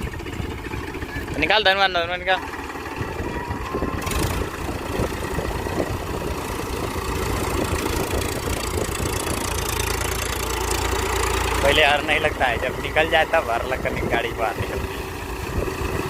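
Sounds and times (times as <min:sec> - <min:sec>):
tractor diesel engine droning: 0:00.0 - 0:16.0.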